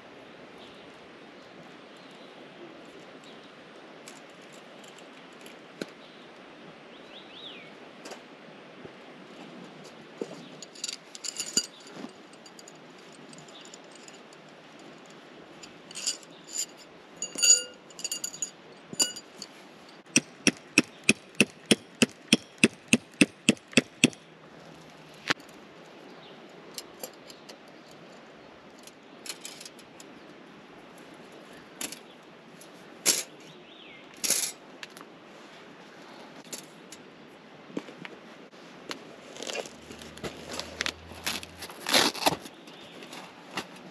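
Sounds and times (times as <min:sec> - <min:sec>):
metallic clinks: 0:10.6 - 0:24.2
sharp clicks: 0:20.1 - 0:24.2.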